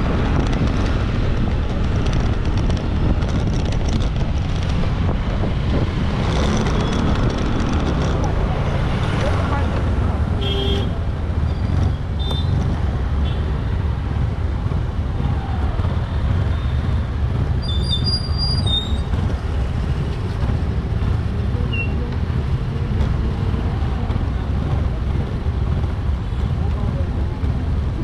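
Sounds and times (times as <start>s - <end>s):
motorbike engine rumble: 0.0s - 28.0s
high squeal: 17.6s - 19.1s.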